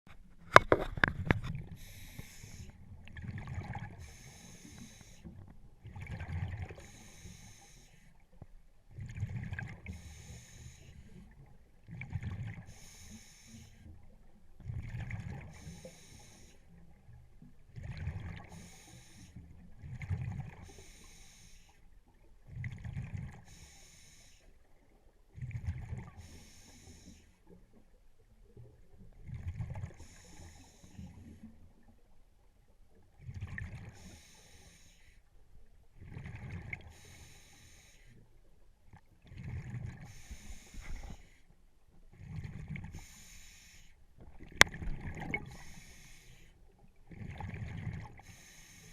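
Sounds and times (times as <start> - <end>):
exhaled bubbles underwater: 0.5 - 7.4, 8.9 - 21.2, 22.1 - 23.6, 24.7 - 34.3, 36.0 - 37.3, 39.2 - 41.4, 42.1 - 43.3, 44.2 - 46.0, 46.6 - 48.9
regulator breathing hiss: 1.8 - 2.8, 4.0 - 5.3, 6.8 - 8.1, 9.9 - 11.0, 12.7 - 13.8, 15.5 - 16.6, 18.5 - 19.4, 20.6 - 21.8, 23.5 - 24.5, 26.2 - 27.3, 34.0 - 35.2, 36.9 - 38.2, 40.1 - 41.4, 43.0 - 44.0, 45.5 - 46.5, 48.2 - 48.9.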